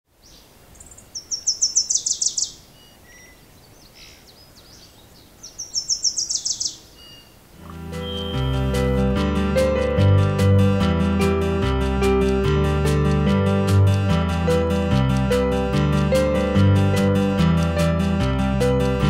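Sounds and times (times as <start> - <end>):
faint outdoor hiss: 0.1 - 9.1
songbird singing: 0.1 - 9.1
acoustic guitar music: 7.6 - 19.0.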